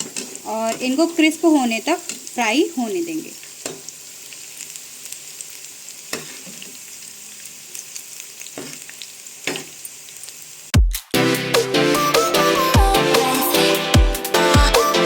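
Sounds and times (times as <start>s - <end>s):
food deep-frying in hot oil: 0.0s - 11.1s.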